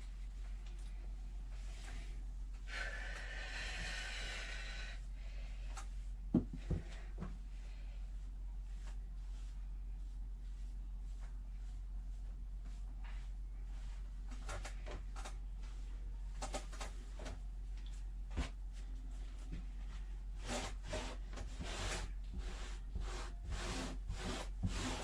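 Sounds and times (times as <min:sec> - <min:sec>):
steady low hum: 0:00.0 - 0:25.0
brush strokes through cat hair: 0:08.6 - 0:14.1, 0:18.7 - 0:25.0.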